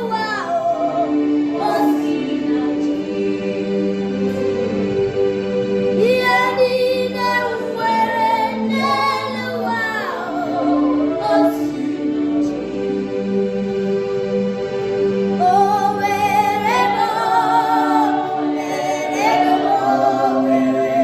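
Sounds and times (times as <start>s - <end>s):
girl singing gospel melody: 6.0s - 11.8s.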